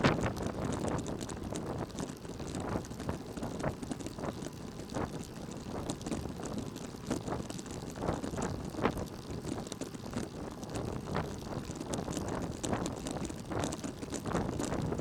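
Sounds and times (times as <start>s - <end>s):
road and wind noise: 0.0s - 2.8s.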